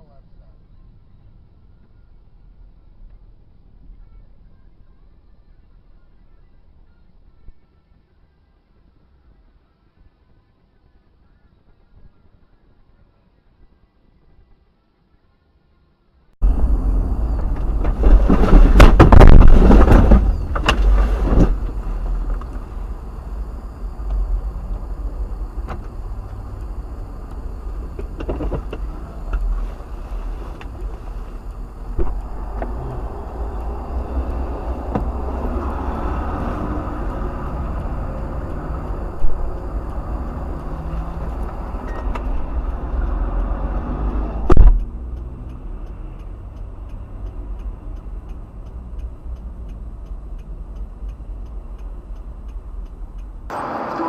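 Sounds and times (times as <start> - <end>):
engine and road rumble: 0.0 - 14.8, 15.8 - 54.0
clatter of impacts and scraping: 17.3 - 22.8.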